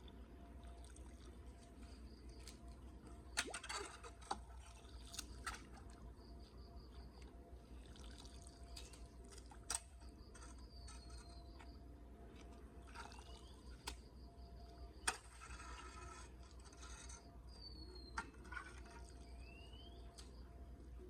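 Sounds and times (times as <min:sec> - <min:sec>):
water dripping and trickling: 0:00.0 - 0:10.4
sharp drips: 0:07.2 - 0:10.5.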